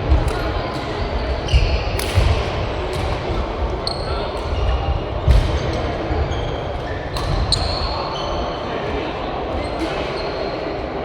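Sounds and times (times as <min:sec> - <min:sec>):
murmur of voices: 0:00.0 - 0:11.0
shoe squeaks on court floor: 0:06.3 - 0:08.6.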